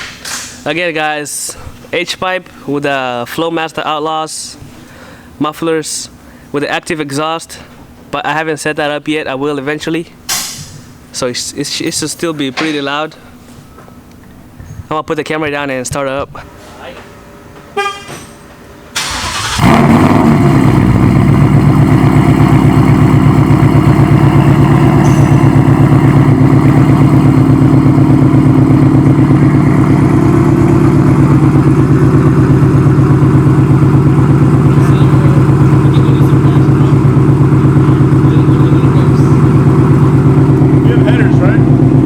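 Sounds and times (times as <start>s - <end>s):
car engine starting and idling: 17.8s - 42.0s.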